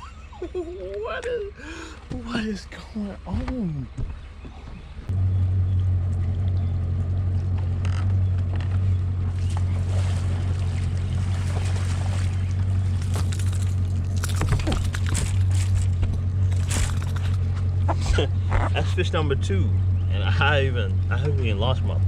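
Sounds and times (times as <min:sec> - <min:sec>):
engine idling: 0:00.0 - 0:22.0
water splashes: 0:09.2 - 0:17.5.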